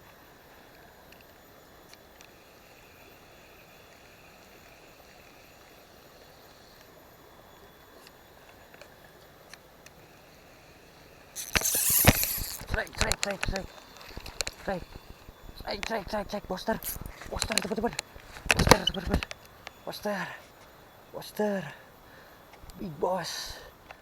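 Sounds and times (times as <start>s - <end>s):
faint ticks: 0.0s - 2.4s, 11.4s - 20.8s.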